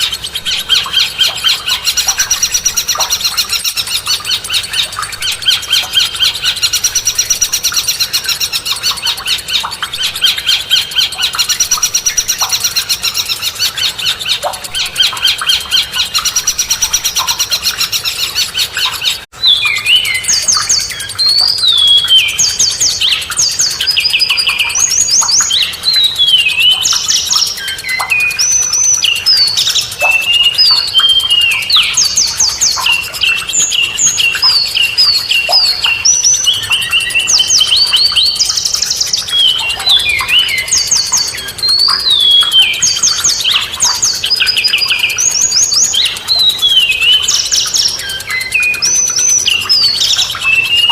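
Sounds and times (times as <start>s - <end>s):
songbird singing: 0.0s - 50.9s.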